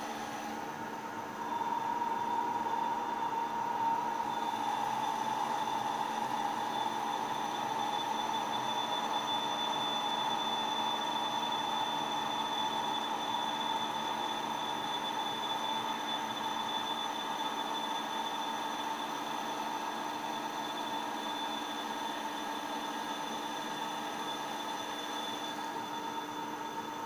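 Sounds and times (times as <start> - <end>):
cnc machine whining: 0.0 - 27.0.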